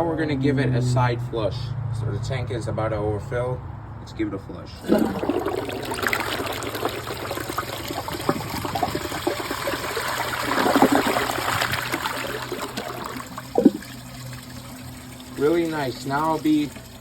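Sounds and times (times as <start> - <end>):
toilet flushing: 4.8 - 17.0.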